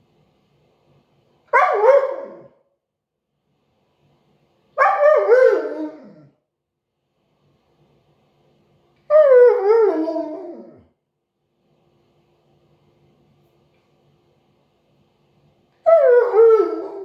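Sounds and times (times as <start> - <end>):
dog howling vocal calls: 4.8 - 6.3, 9.1 - 10.8, 15.9 - 17.0.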